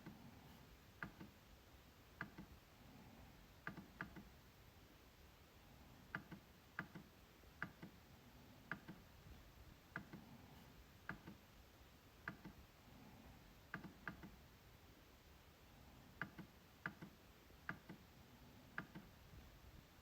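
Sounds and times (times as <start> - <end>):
trackpad clicks: 1.0 - 1.4, 2.2 - 2.5, 3.6 - 4.3, 6.1 - 8.0, 8.7 - 9.0, 11.0 - 11.4, 12.2 - 12.6, 13.7 - 14.4, 16.2 - 18.0, 18.8 - 19.1.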